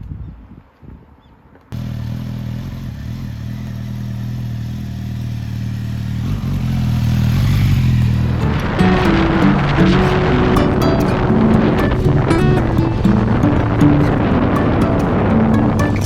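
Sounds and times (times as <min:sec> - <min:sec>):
motorcycle engine running: 0:01.8 - 0:10.2.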